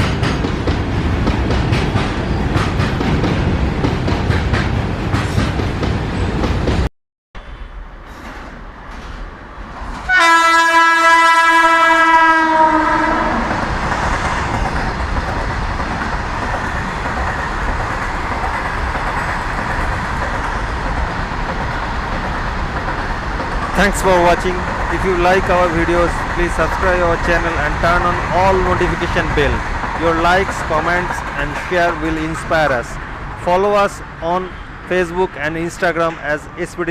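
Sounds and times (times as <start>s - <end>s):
freight train clickety-clack: 0.0s - 6.9s, 12.8s - 36.9s
rumble of running train: 0.0s - 36.9s
locomotive air horn: 10.1s - 13.5s.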